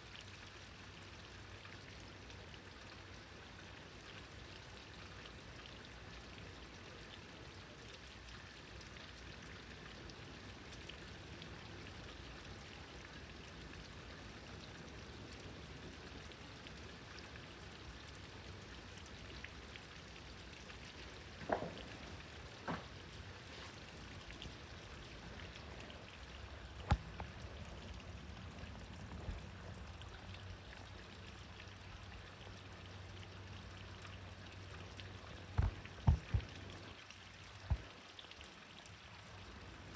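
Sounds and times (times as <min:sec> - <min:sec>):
rain falling: 0:00.8 - 0:39.9.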